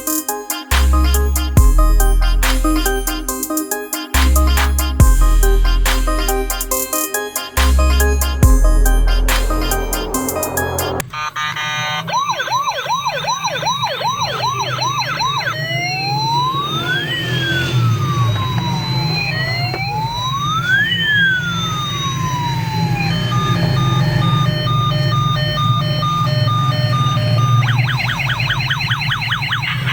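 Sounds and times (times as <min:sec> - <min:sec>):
toy siren yelp and wail: 0:10.9 - 0:29.9.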